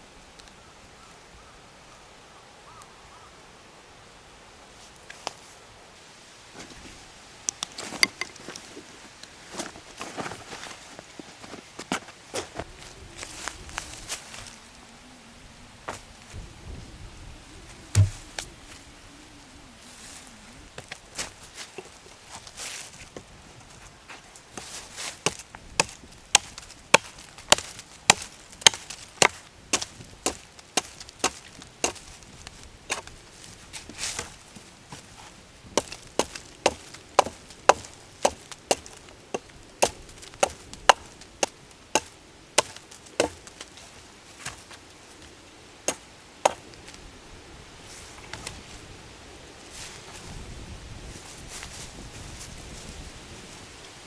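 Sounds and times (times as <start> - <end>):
firewood being chopped: 7.6 - 8.6, 17.9 - 18.5, 24.6 - 35.1, 35.7 - 47.0.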